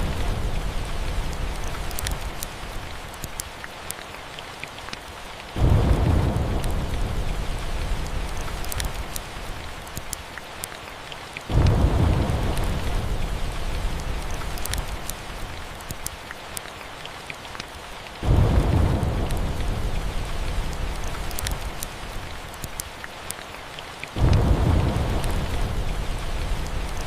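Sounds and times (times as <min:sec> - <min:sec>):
thunder rumbling: 0:00.0 - 0:02.4, 0:05.6 - 0:09.2, 0:11.5 - 0:15.6, 0:18.2 - 0:22.2, 0:24.2 - 0:27.0
sharp crackles: 0:00.0 - 0:10.8, 0:11.5 - 0:16.8, 0:17.5 - 0:23.5
steady rain: 0:00.0 - 0:27.0.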